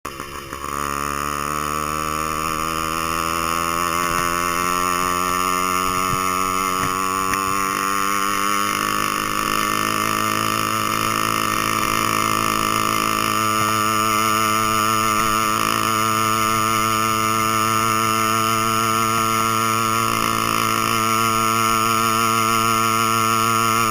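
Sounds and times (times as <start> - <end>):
small two-stroke engine buzzing: 0.0 - 23.9.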